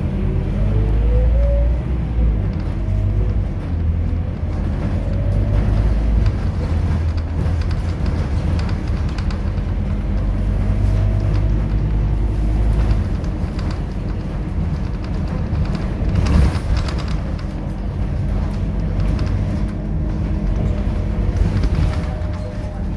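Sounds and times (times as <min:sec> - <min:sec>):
bus diesel engine hum: 0:00.0 - 0:22.9.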